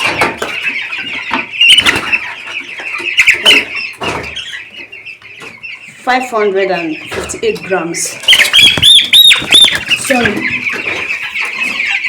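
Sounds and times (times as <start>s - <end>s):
chicks peeping: 0.0s - 12.0s
chick squealing: 0.4s - 6.0s, 8.0s - 12.0s.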